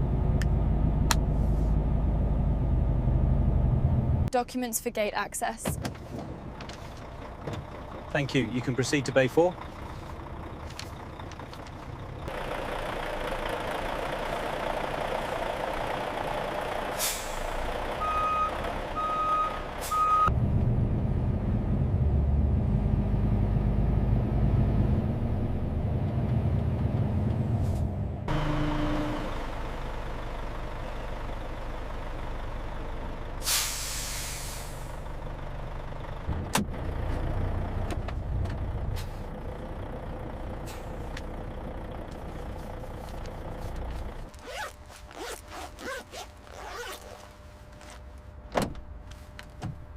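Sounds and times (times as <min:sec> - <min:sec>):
diesel truck engine running: 0:00.0 - 0:44.9
air brake hiss: 0:17.0 - 0:17.6, 0:33.4 - 0:35.0, 0:40.6 - 0:41.0
reversing beeps: 0:18.0 - 0:20.3.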